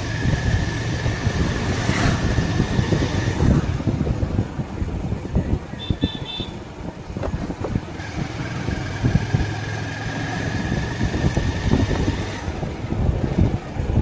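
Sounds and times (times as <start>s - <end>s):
motorcycle engine: 0.0s - 4.4s, 7.2s - 13.9s
wind buffeting microphone: 0.0s - 14.0s.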